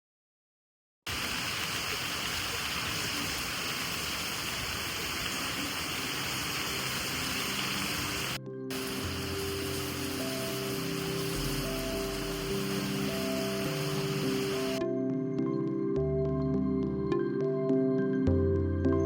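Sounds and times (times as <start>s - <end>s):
rushing water hiss: 1.1s - 14.8s.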